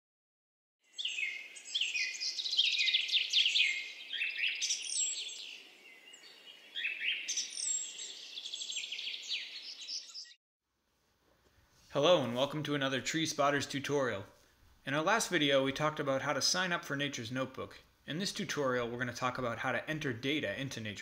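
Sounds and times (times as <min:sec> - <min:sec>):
songbirds singing: 0:00.8 - 0:10.4.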